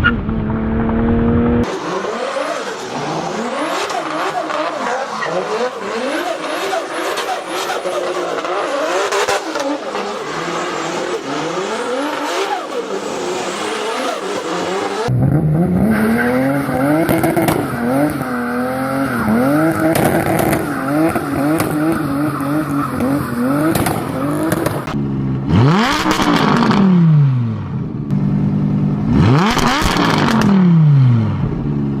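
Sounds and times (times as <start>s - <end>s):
car engine revving: 0.0s - 32.0s
tyre squeal: 1.8s - 8.9s.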